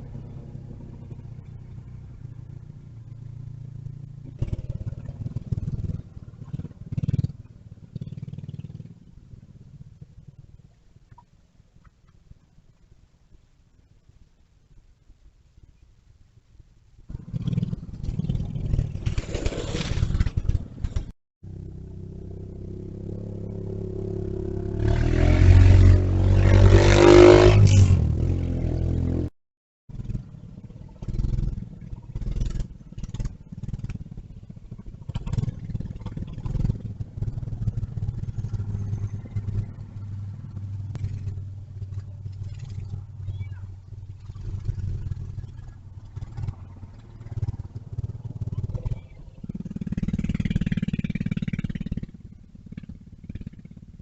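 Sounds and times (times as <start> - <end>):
mini bike engine passing: 17.2 - 21.0, 30.0 - 53.7.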